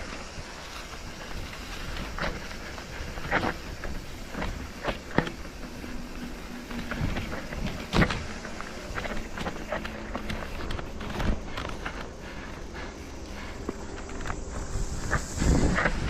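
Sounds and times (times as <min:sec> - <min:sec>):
vehicle low rumble: 0:00.0 - 0:16.0.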